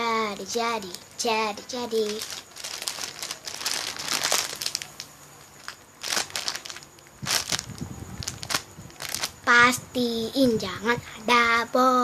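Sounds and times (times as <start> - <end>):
plastic bag crinkling: 1.7 - 9.5.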